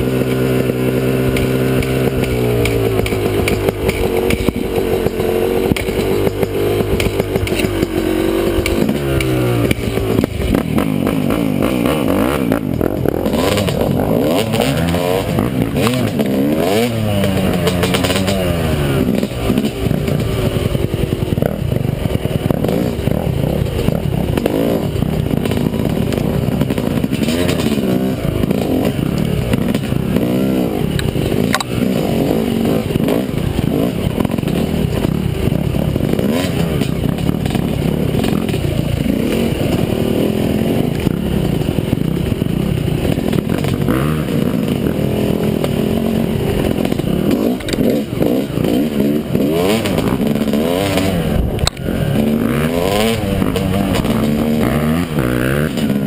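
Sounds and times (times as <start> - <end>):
motocross bike engine revving: 0.0 - 56.0
sharp click: 31.0 - 31.7, 50.9 - 51.9.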